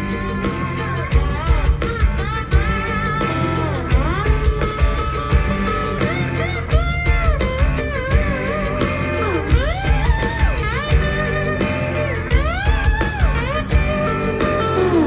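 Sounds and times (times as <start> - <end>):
band music with bass and guitar: 0.0 - 15.0.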